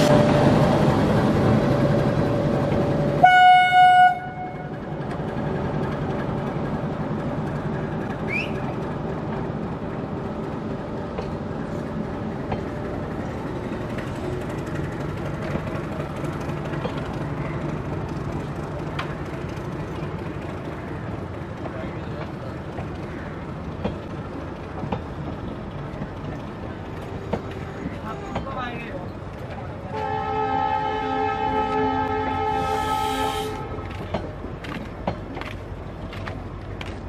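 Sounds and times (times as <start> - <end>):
train wheels on rail: 0.0 - 37.0
train horn: 3.2 - 4.7, 29.9 - 34.0.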